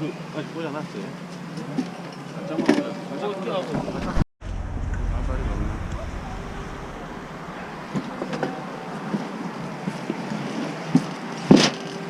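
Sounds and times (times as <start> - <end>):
loud sharp bang: 4.4 - 8.6.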